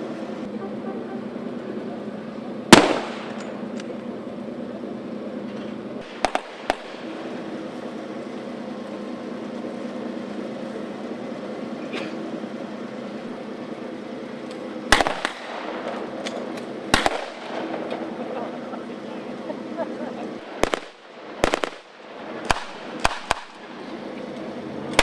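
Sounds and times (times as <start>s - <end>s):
steady low hum: 0.0s - 25.0s
blank gunfire cracks: 2.7s - 3.9s, 6.0s - 7.1s, 14.9s - 18.2s, 20.6s - 23.7s.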